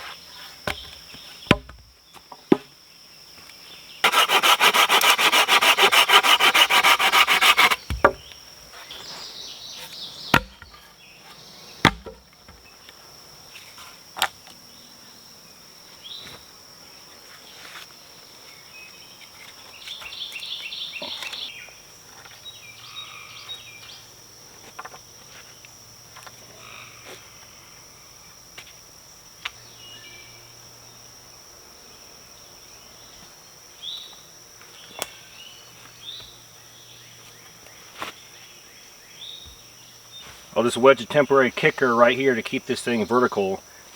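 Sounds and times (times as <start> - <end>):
high insect buzz: 0.0 - 43.9
sharp wooden knocks: 1.5 - 1.8, 4.1 - 8.3, 10.3 - 10.7, 11.8 - 12.2
hand saw cutting wood: 4.0 - 8.2.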